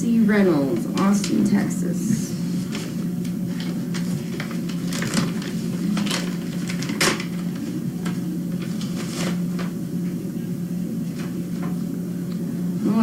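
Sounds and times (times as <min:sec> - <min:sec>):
steady low hum: 0:00.0 - 0:13.0
paper rustling: 0:03.5 - 0:09.7.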